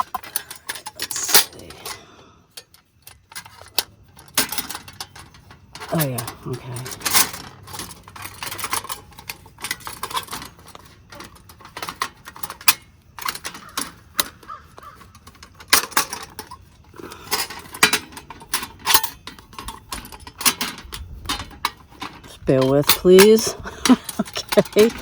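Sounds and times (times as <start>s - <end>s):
metal clicks of camp stove: 0.0s - 6.0s, 7.0s - 25.0s
crows cawing: 13.6s - 15.1s.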